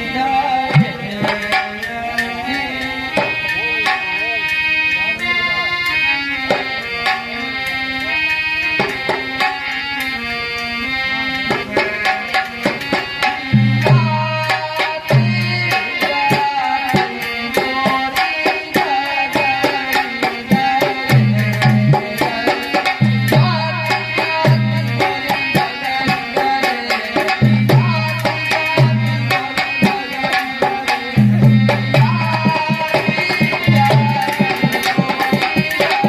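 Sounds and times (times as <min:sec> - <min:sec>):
hand drum played fast: 0:11.5 - 0:36.0.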